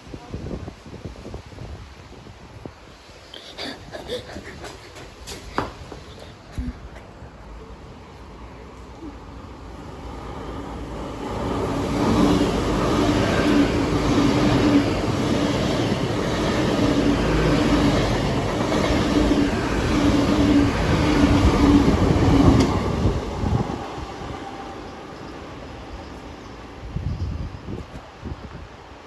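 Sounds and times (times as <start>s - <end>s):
train passing at speed: 1.4s - 29.0s.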